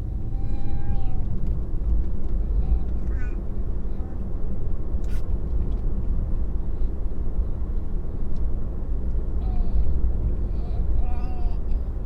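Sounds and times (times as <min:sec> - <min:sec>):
road and tyre rumble: 0:00.0 - 0:12.0.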